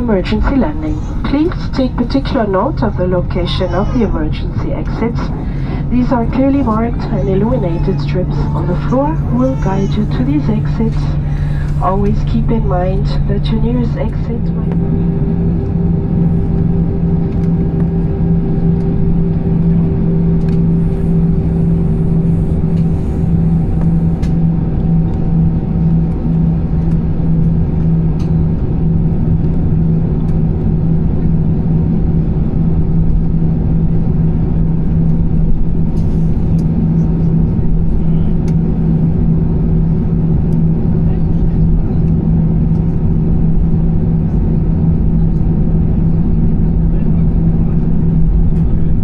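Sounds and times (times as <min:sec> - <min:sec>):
higher engine tone: 0:00.0 - 0:23.8
aircraft cabin engine hum: 0:00.0 - 0:49.0.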